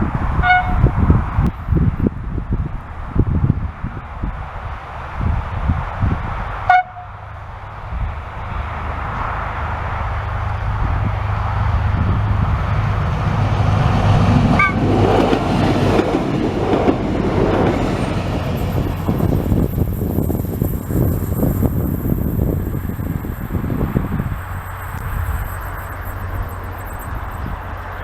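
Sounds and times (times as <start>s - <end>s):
train engine and wheels on rails: 0.0s - 28.0s
train horn toots: 0.4s - 1.2s, 6.6s - 7.3s, 14.5s - 15.1s.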